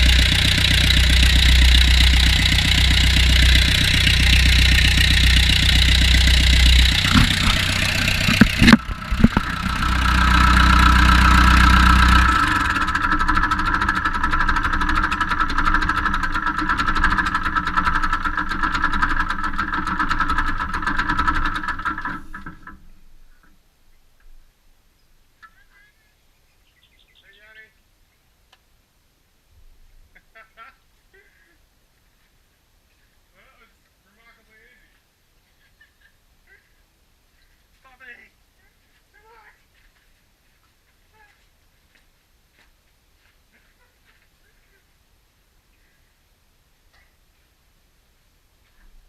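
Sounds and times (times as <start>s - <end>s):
backhoe engine running: 0.0s - 23.5s
sharp knocks: 6.8s - 9.8s.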